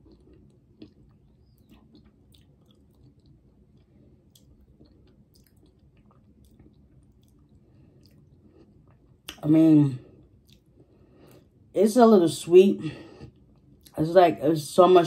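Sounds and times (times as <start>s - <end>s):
faint chewing: 0.0s - 9.4s, 10.0s - 11.7s, 13.1s - 14.0s
wet mouth clicks: 0.0s - 9.4s.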